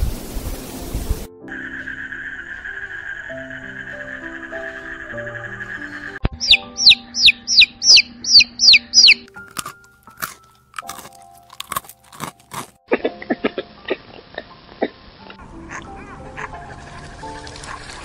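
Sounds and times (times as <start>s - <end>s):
soft background music: 0.2s - 18.0s
loud descending chirps: 1.5s - 9.3s
crunching clicks: 9.0s - 12.8s.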